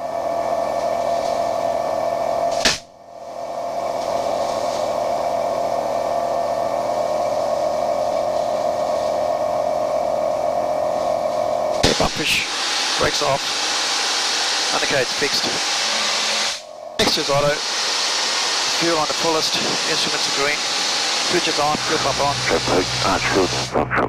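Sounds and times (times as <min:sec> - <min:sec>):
aircraft engine drone: 0:00.0 - 0:24.0.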